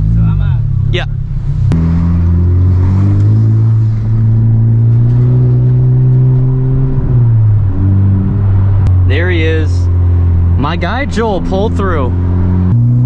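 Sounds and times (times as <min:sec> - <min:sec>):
car engine pulling away: 0:00.0 - 0:13.0.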